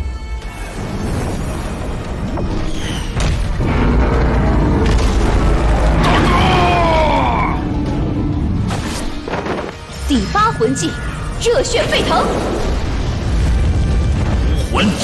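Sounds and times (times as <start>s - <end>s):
dramatic orchestral score: 0.0s - 15.0s
booming battle effects: 0.6s - 9.9s, 11.0s - 15.0s
deep rumble: 0.8s - 9.7s, 12.2s - 15.0s.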